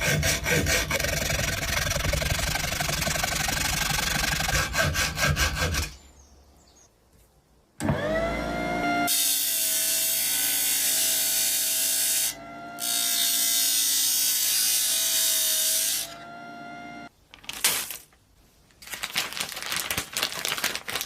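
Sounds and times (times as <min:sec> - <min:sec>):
rotary power tool whining: 0:07.8 - 0:17.1.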